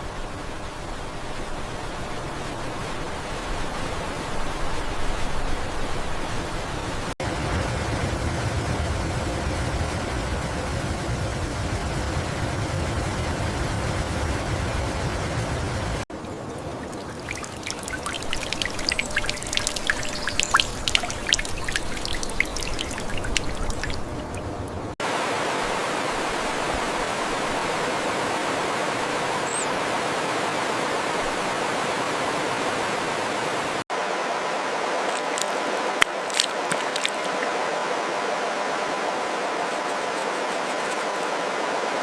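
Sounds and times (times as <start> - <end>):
rushing flowing water: 0.0 - 42.0
water trickling with drips: 16.1 - 25.0, 35.1 - 37.5.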